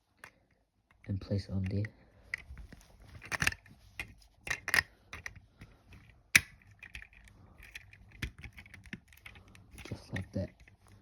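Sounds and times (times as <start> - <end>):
plastic pieces clicking: 3.2 - 11.0.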